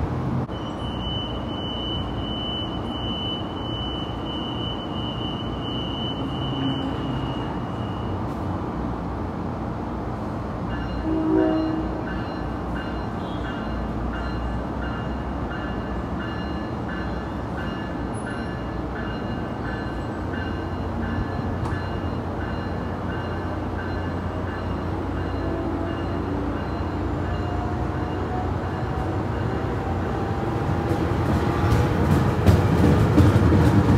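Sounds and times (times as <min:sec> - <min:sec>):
train wheels rumbling on rail: 0:00.0 - 0:33.9
train horn toot: 0:11.0 - 0:12.1.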